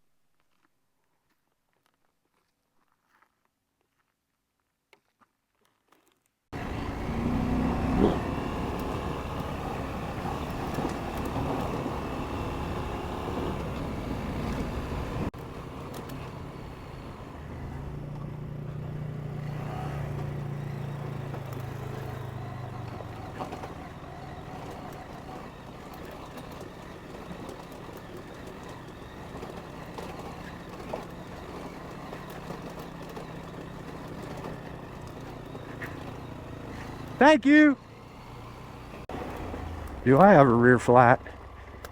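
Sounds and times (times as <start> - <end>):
motorcycle engine running: 6.5 - 41.9
wind and road noise: 6.5 - 41.9.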